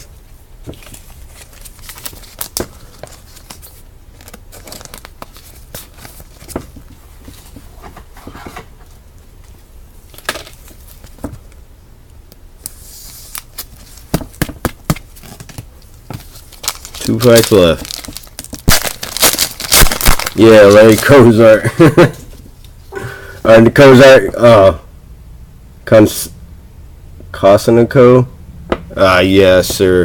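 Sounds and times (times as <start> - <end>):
foil wrapper crinkling and tearing: 0.8 - 6.4, 16.3 - 21.4.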